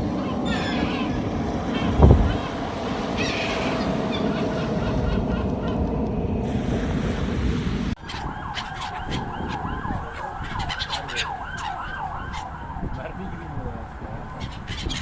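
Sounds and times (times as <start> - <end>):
seagulls calling: 0.0 - 6.2, 8.0 - 12.6, 14.3 - 15.0
steady rushing noise: 0.0 - 8.0.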